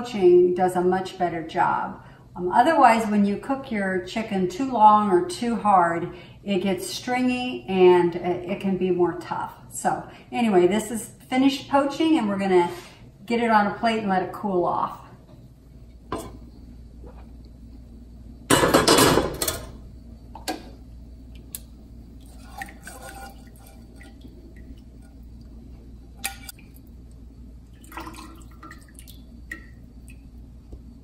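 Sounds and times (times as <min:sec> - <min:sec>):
steady low hum: 0:00.0 - 0:31.0
broth dripping: 0:21.3 - 0:31.0.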